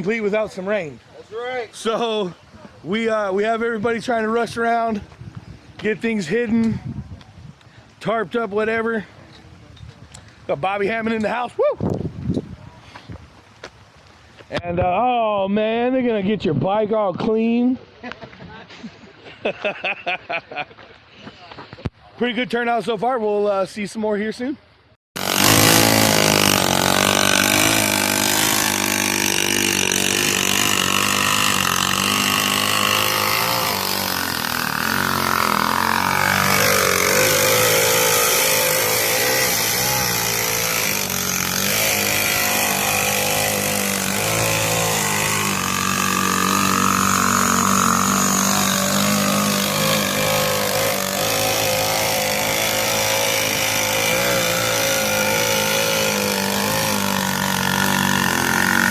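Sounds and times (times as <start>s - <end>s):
mini bike engines idling: 25.2s - 58.9s.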